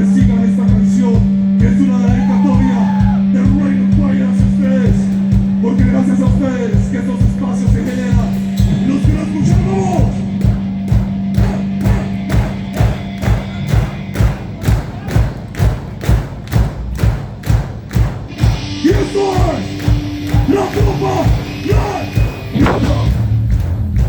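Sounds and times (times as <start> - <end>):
heavy drum beat: 0.0 - 24.0
person shouting: 2.1 - 3.3, 20.4 - 23.1.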